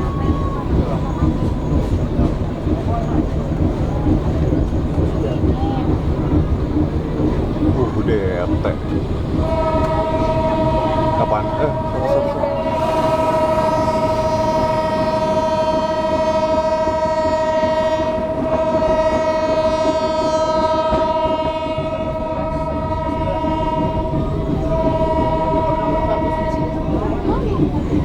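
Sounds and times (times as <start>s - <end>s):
train rumbling: 0.0s - 28.0s
locomotive horn chord: 9.3s - 27.6s.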